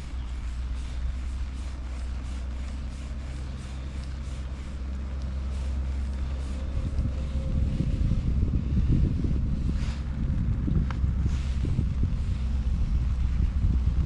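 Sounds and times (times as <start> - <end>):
engine running low hum: 0.0 - 14.0
wind buffeting microphone: 0.0 - 14.0.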